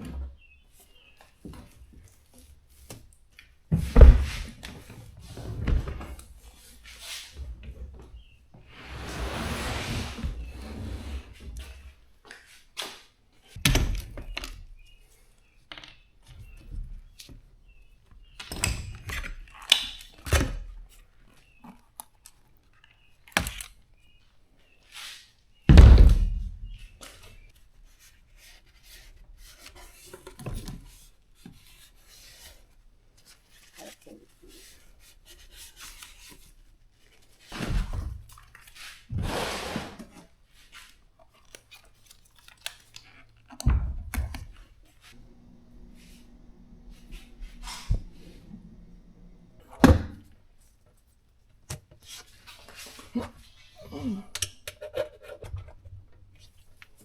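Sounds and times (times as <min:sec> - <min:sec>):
heavy thump: 0:45.2 - 0:50.2.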